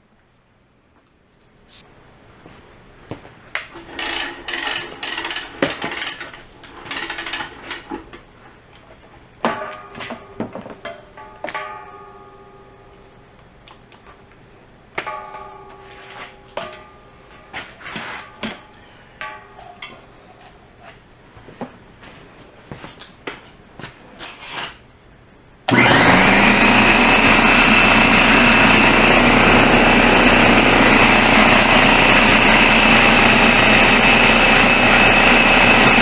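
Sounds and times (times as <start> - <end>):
rattling and scraping: 3.8 - 8.2
ringing metal knocks and clanks: 9.5 - 13.1, 15.0 - 20.6.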